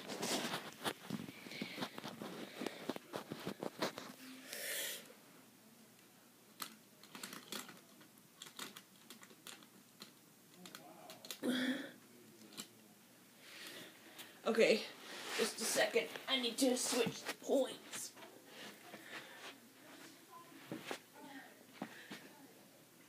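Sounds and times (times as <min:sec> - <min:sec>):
plastic model railway pieces clicking: 0:06.6 - 0:11.4.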